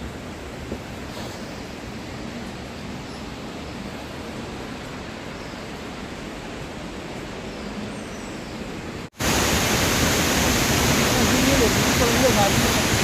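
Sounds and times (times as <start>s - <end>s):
waterfall roaring: 9.1s - 13.0s.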